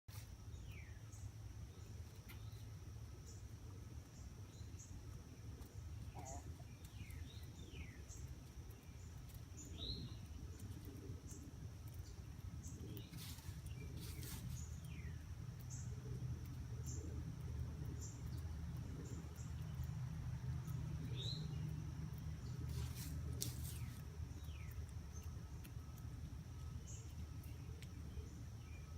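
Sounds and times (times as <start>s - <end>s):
scratching or rustling: 12.7s - 15.0s, 22.5s - 24.8s.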